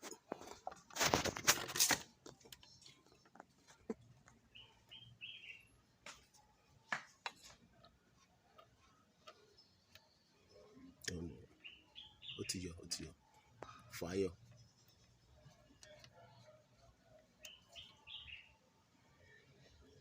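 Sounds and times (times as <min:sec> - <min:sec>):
bird chirping: 0:04.1 - 0:06.7, 0:07.4 - 0:20.0.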